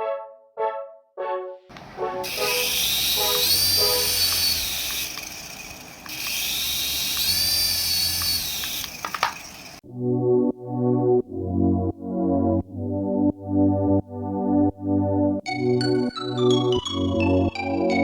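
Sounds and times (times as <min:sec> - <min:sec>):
clicks: 0:01.7 - 0:09.8
electric toy motor whining: 0:02.2 - 0:09.8.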